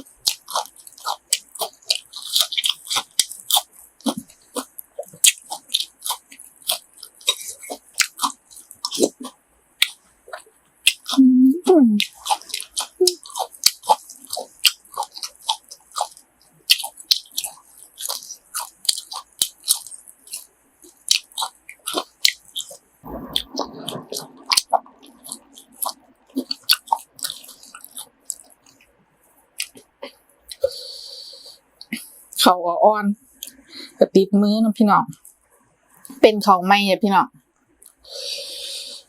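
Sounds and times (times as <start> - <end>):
chewing and biting food: 0.0 - 11.2, 12.0 - 30.8.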